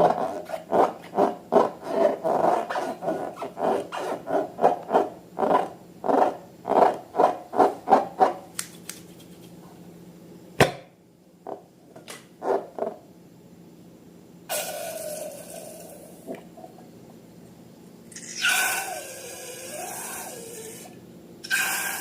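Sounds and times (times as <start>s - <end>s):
sharp snap: 8.5s - 9.2s.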